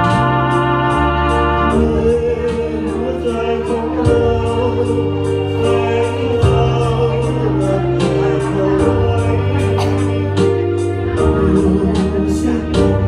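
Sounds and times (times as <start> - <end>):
electronic organ chords: 0.0 - 13.0
steady beat: 4.1 - 13.0.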